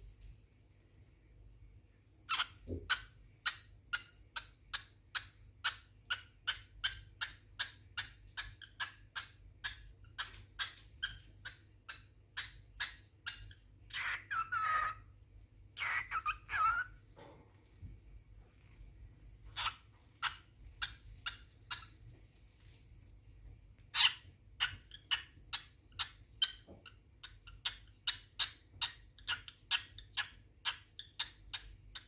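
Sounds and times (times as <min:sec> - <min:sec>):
cockatiel chirping: 0:02.3 - 0:15.1, 0:15.8 - 0:17.0, 0:19.5 - 0:22.0, 0:23.8 - 0:32.0
cockatiel whistled calls: 0:13.4 - 0:15.0, 0:15.8 - 0:17.0.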